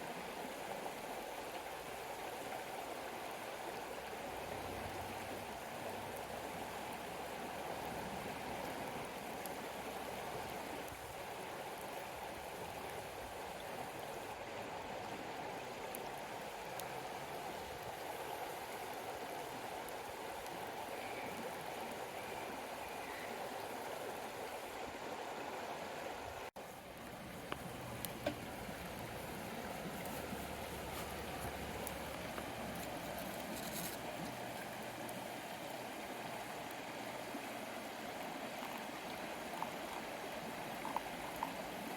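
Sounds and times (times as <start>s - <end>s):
flowing river rushing: 0.0s - 41.9s.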